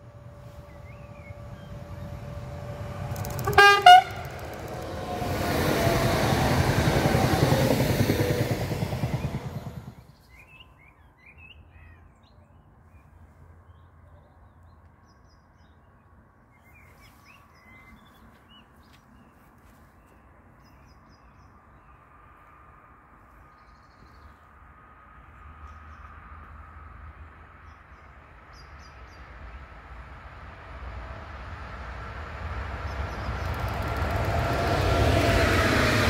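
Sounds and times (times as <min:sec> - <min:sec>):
train passing at speed: 0:00.0 - 0:10.5, 0:24.6 - 0:36.0.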